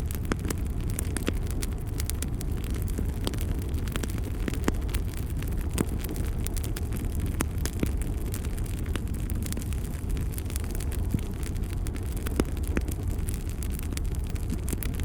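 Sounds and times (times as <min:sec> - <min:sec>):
wood fire burning and crackling: 0:00.0 - 0:15.0.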